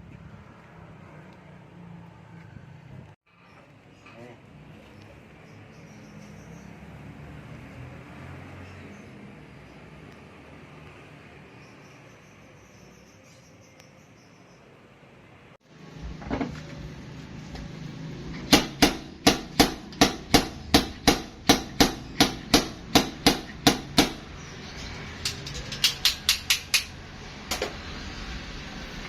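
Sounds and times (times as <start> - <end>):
hammer striking metal: 18.4 - 24.3, 25.2 - 27.7.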